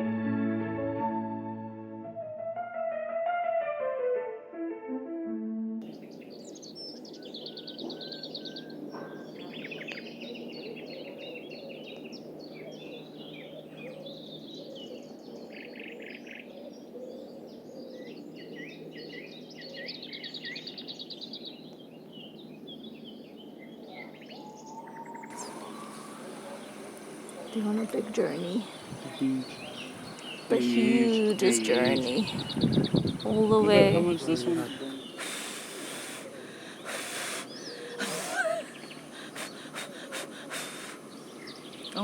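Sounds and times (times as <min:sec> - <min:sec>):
small birds chirping and trilling: 0:05.8 - 0:42.0.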